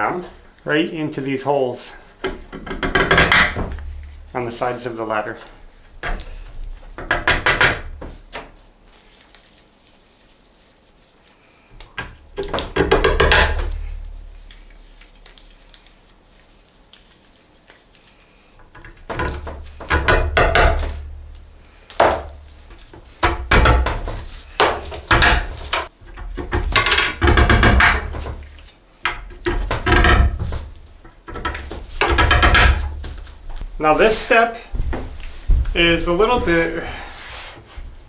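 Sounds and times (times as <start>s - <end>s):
wood and metal clattering: 1.5s - 8.7s, 11.8s - 15.1s, 18.6s - 38.0s.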